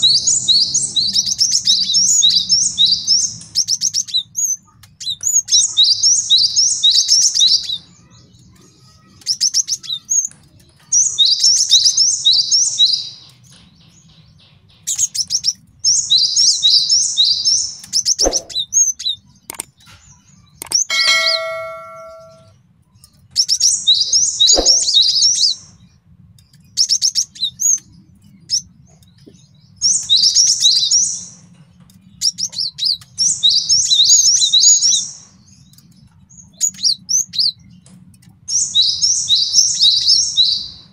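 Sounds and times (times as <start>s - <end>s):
bird singing rapid high notes: 18.2s - 18.6s, 20.6s - 22.5s, 24.5s - 25.1s
sharp click: 18.2s - 18.6s, 19.5s - 19.7s, 20.6s - 22.4s, 24.6s - 25.0s
bell-like ding: 20.9s - 22.5s, 24.6s - 24.9s.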